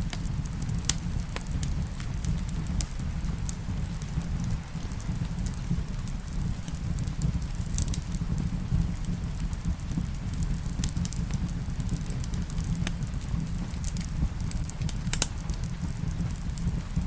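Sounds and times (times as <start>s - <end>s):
low rumble: 0.0s - 17.0s
soft hiss of rain: 0.0s - 17.0s
wood fire crackling and popping: 0.0s - 17.0s.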